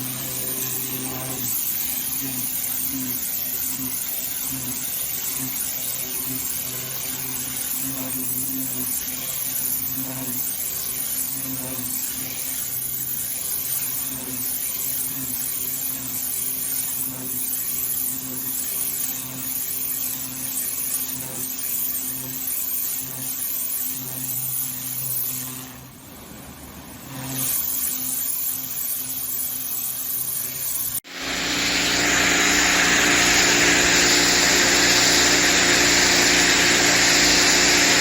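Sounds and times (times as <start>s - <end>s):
pressure washer motor hum: 31.0s - 38.0s
high-pressure water spray hissing: 31.1s - 38.0s.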